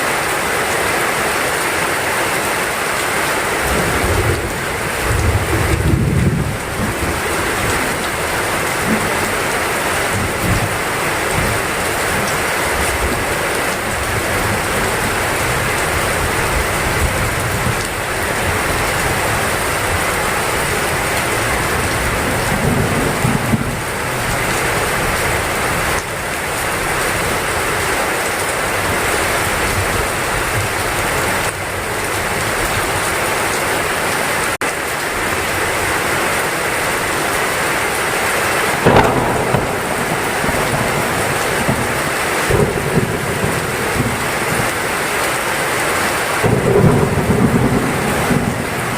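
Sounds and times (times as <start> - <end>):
heavy rain pouring: 0.0 - 48.9
low rumbles of thunder: 3.6 - 12.3, 38.7 - 44.8, 46.4 - 48.9.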